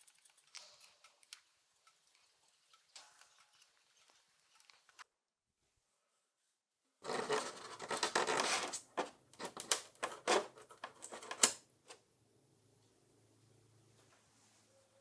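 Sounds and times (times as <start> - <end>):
scraping on a surface: 7.0 - 9.1.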